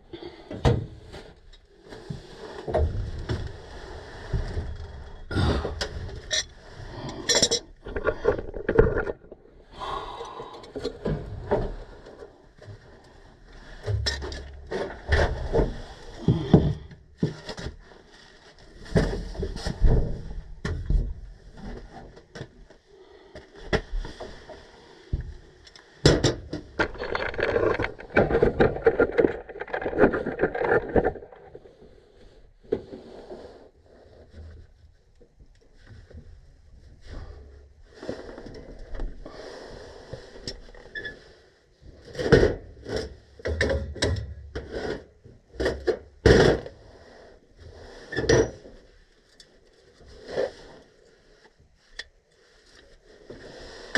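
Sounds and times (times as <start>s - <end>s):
tools clicking and knocking: 7.2s - 7.7s
scraping and rubbing: 26.6s - 33.7s.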